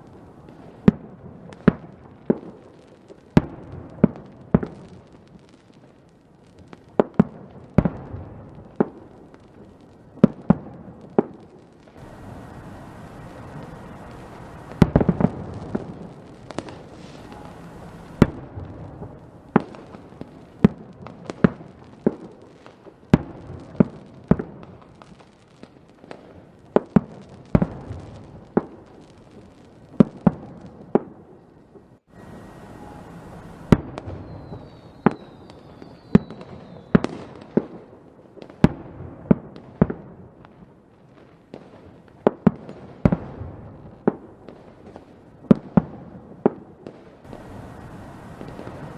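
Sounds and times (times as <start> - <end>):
fireworks exploding: 0.0 - 48.9
falling whistle: 32.1 - 37.0.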